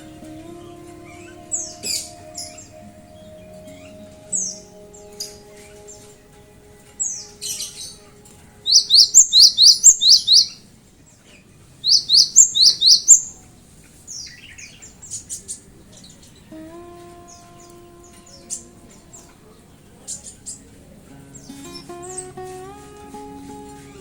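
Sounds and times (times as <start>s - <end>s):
bird chirps: 8.7s - 10.6s, 11.8s - 13.4s
bird singing whistled notes: 8.7s - 10.6s, 11.8s - 13.4s.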